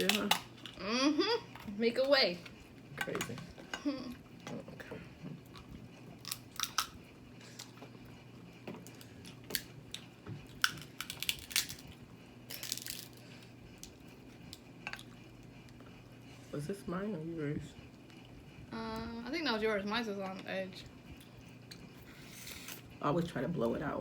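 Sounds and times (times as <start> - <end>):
crab shells cracking: 0.0 - 0.8, 6.2 - 7.0, 8.9 - 13.2.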